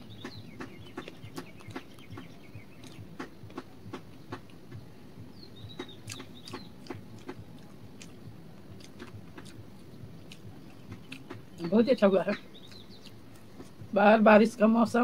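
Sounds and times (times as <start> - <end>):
wet chewing mouth clicks: 0.2 - 3.6, 5.8 - 11.7.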